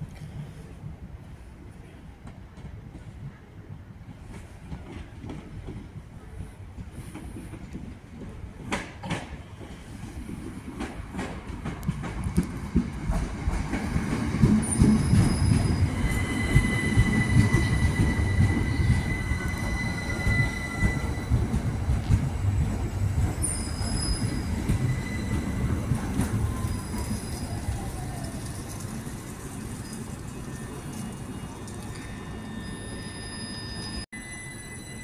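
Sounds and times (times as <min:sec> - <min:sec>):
train rumble: 0:00.0 - 0:35.0
train wheels squealing: 0:13.9 - 0:35.0.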